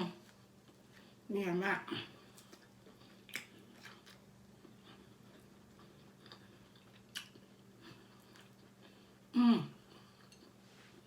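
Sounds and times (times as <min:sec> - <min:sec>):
chewing and biting: 0:02.3 - 0:09.0.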